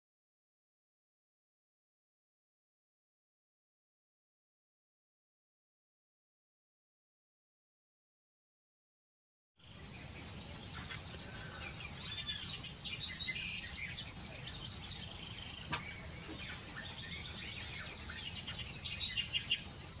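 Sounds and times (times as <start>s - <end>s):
parrots chirping and calling: 9.9s - 19.9s.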